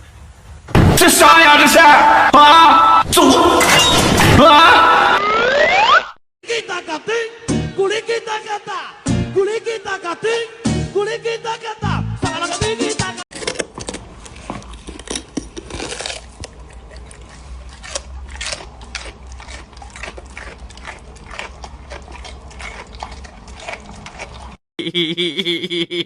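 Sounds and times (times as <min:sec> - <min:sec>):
clicks and crunches: 0:13.3 - 0:24.6.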